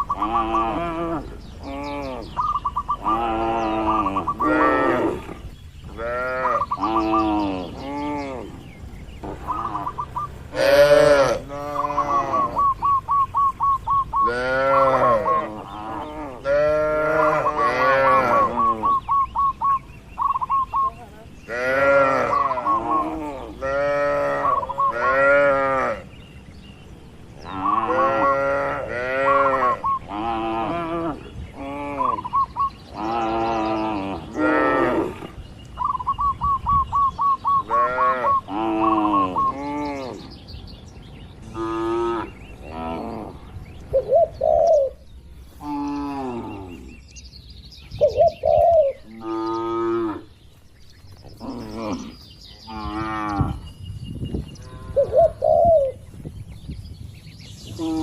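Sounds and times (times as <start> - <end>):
cattle mooing: 0.0 - 2.4, 3.0 - 8.6, 9.4 - 12.8, 14.2 - 19.0, 21.5 - 26.0, 27.5 - 32.2, 37.7 - 40.3, 57.8 - 58.0.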